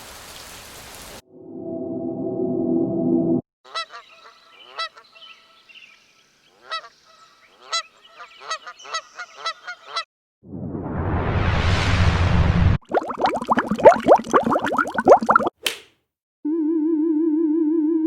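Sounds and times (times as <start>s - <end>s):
geese honking: 3.7s - 5.6s, 6.6s - 10.0s
faint bird chatter: 3.8s - 10.0s.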